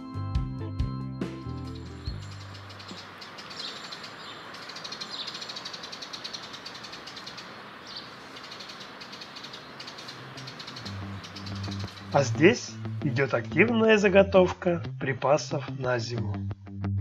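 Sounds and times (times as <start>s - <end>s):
small birds chirping: 1.2s - 13.6s
background hiss: 1.6s - 13.2s.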